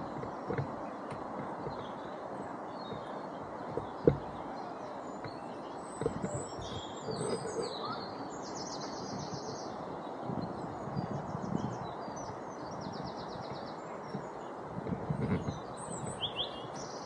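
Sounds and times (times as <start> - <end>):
outdoor background noise: 0.0 - 17.0
songbirds chirping: 0.0 - 17.0
bird trill: 4.5 - 9.6.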